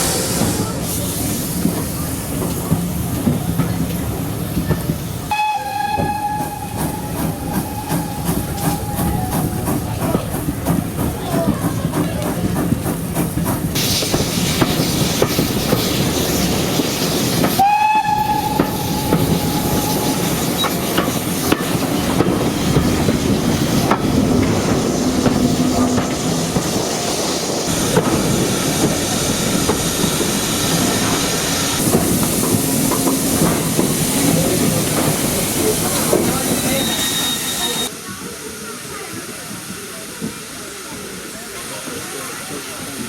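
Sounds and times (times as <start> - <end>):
train rumbling with wheel clatter: 0.0 - 43.0
train whistle: 5.3 - 9.5, 17.5 - 20.8, 36.4 - 37.9.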